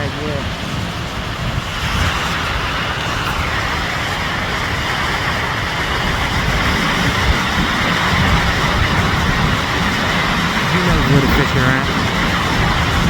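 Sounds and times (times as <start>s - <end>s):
water pouring over a dam: 1.6s - 11.0s.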